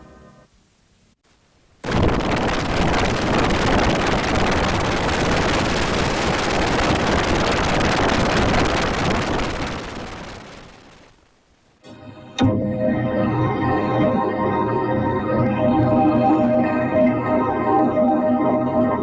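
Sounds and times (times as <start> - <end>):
loud rush of noise with rumble: 1.8 - 11.3.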